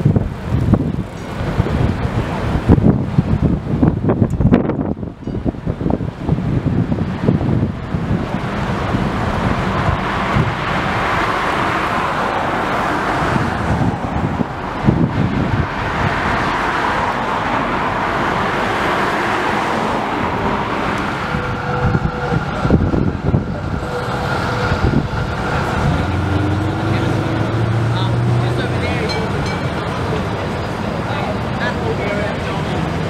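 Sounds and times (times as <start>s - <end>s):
passing traffic: 0.0s - 33.0s.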